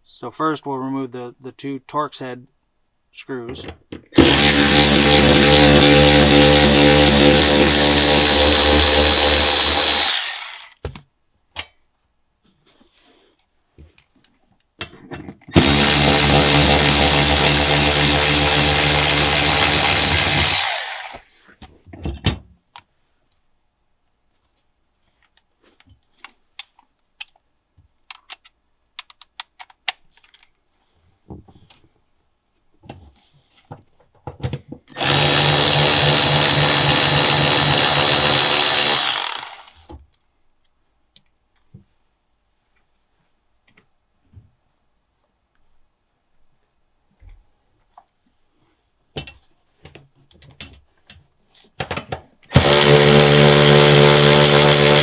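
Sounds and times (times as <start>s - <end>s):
electric impact driver running: 4.2s - 10.8s, 15.6s - 21.2s, 35.0s - 39.9s, 52.5s - 55.0s
small clicks and handling noises: 24.4s - 30.7s, 31.3s - 32.0s.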